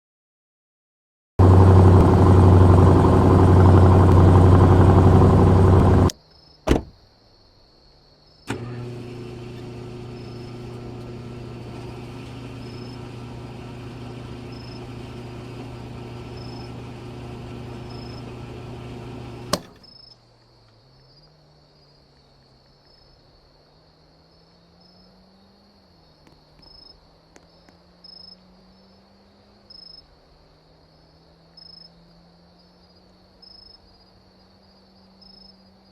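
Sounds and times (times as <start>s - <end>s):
car engine running loud: 1.4s - 6.1s, 8.5s - 19.8s
engine idling: 1.4s - 6.1s, 8.5s - 19.8s
crickets chirping: 6.1s - 8.5s, 12.6s - 13.0s, 14.5s - 14.8s, 16.4s - 16.7s, 19.8s - 35.9s
click: 19.2s - 19.9s.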